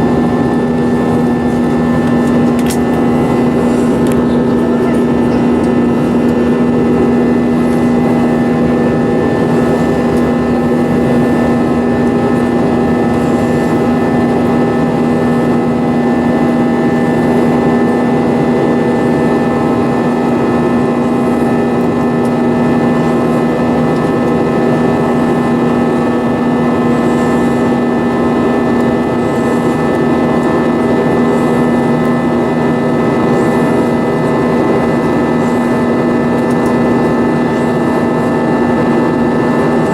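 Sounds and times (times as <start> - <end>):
jet engine roar in cabin: 0.0 - 39.9.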